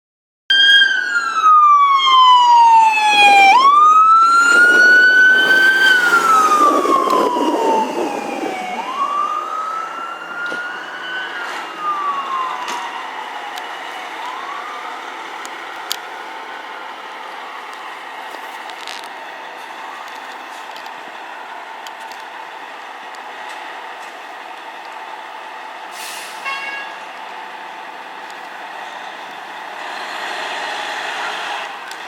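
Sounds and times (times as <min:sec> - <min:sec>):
fire truck siren wailing: 0:00.5 - 0:32.0.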